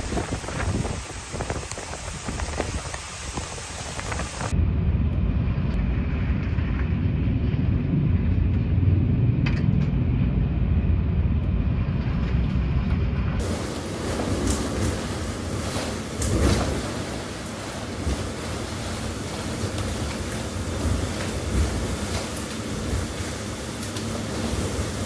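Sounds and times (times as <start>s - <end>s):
heavy rain: 0.0s - 4.6s, 13.3s - 25.0s
low roar of storm: 0.0s - 25.0s
thunder crackles: 0.0s - 25.0s.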